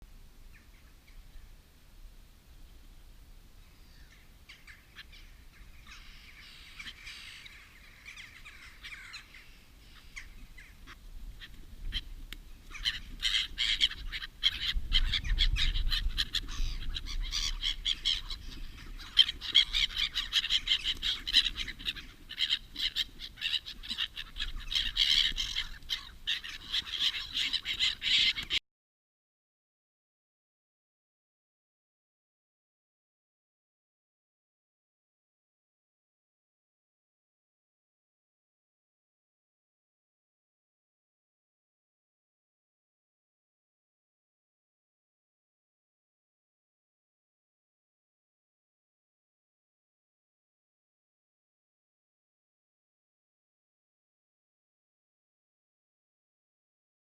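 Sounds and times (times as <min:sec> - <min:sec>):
birds calling and chattering: 0:03.6 - 0:28.6.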